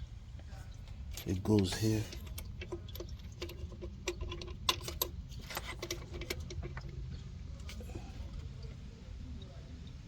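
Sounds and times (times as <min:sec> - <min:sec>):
metal bolts clinking: 0:01.1 - 0:07.0.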